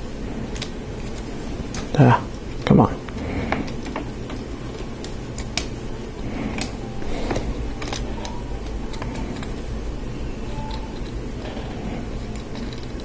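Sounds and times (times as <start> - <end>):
steady low hum: 0.0 - 13.0
plastic parts clicking: 6.5 - 9.6, 10.6 - 13.0.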